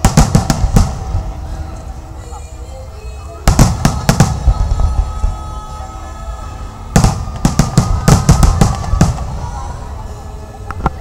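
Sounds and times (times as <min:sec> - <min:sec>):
fireworks bangs: 0:00.0 - 0:01.6, 0:03.4 - 0:05.9, 0:06.9 - 0:10.0
music playing: 0:00.0 - 0:11.0.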